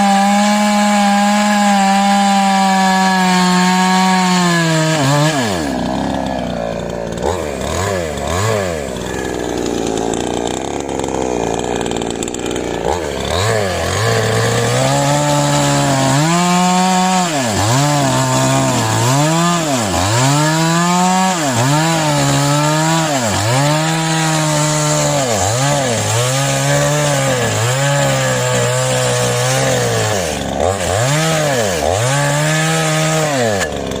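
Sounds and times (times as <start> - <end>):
small engine power tool running: 0.0 - 34.0.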